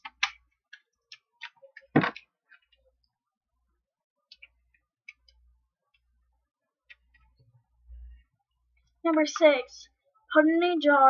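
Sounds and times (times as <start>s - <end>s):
small clicks and ticks: 4.3s - 6.1s.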